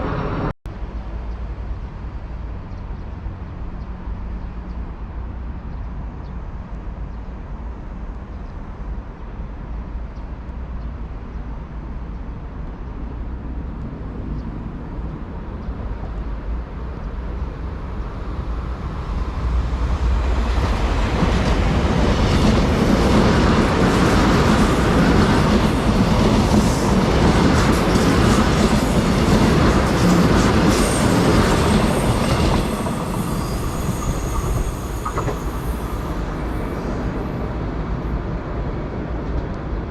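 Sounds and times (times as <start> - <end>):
train passing on track: 0.0 - 39.9
rail clicks: 19.9 - 37.2.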